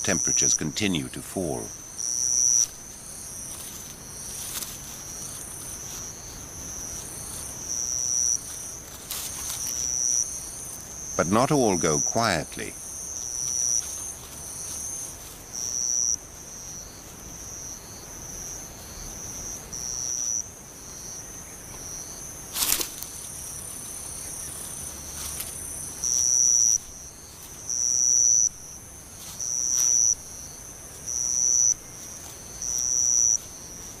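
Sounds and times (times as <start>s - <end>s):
insect high trill: 0.0s - 34.0s.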